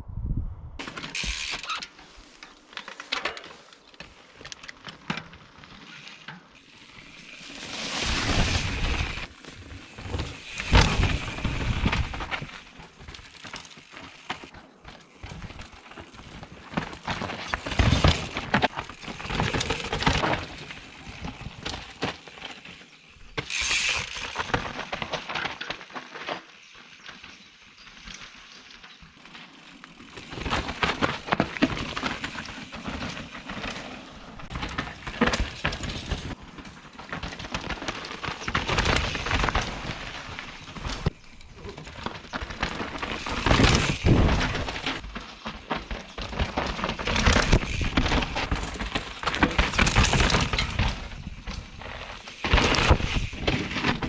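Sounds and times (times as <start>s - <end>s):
bike rattling over bumps: 0.8s - 54.0s
bike tyres rolling over dirt: 0.8s - 54.0s.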